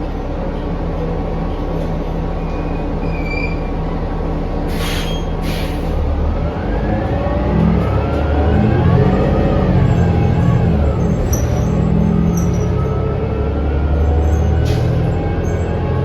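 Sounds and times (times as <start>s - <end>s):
bus drivetrain droning: 0.0s - 16.0s
short air hisses: 4.7s - 6.0s.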